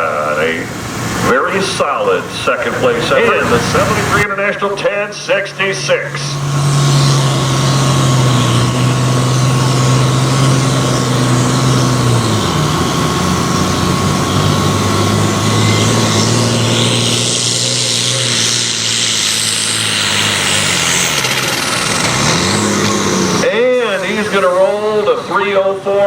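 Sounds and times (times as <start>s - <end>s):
tractor engine running hard: 0.0s - 26.0s
hissing noise: 0.1s - 26.0s.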